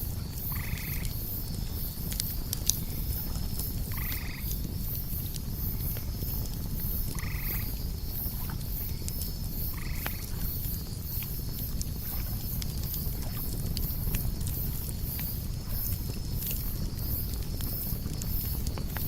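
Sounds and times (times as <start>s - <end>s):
campfire crackling: 0.0s - 19.0s
high pulsing insect chirp: 0.0s - 19.0s
insects trilling: 0.0s - 19.0s
night animal calls: 0.5s - 1.1s, 7.2s - 7.7s.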